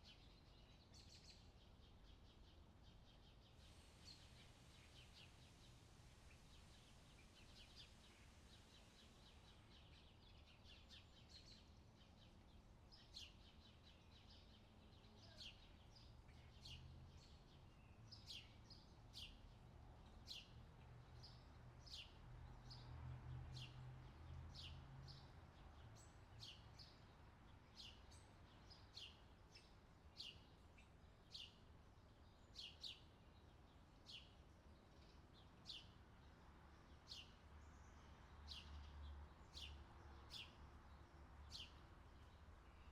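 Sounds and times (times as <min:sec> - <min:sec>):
bird chirping: 0:36.8 - 0:42.9.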